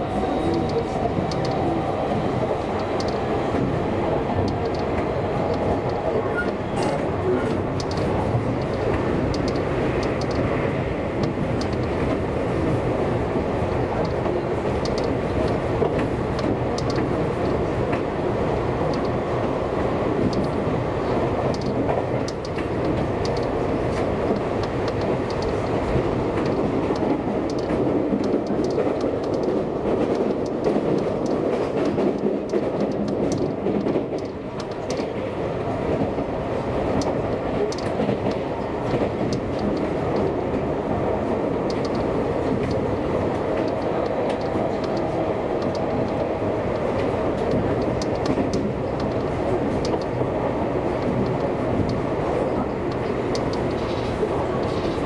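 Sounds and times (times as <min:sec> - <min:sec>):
train rolling rumble: 0:00.0 - 0:55.0
wheels clicking over rail joints: 0:20.2 - 0:36.3.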